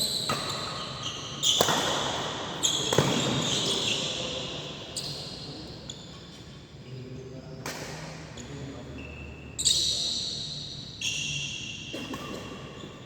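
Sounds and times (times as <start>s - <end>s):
shoes squeaking on court floor: 0.0s - 6.7s, 8.3s - 13.0s
racket striking shuttlecock: 1.5s - 2.2s.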